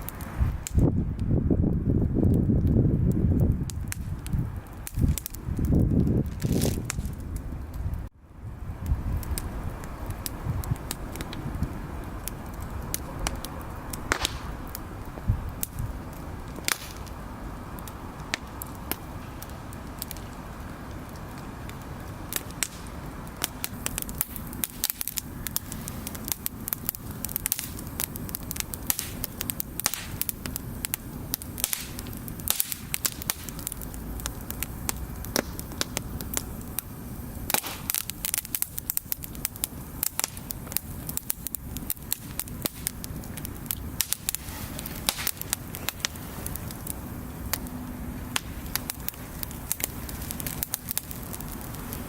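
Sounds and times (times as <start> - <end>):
low rumble: 0.0 - 28.7
bonfire crackling and popping: 0.0 - 52.0.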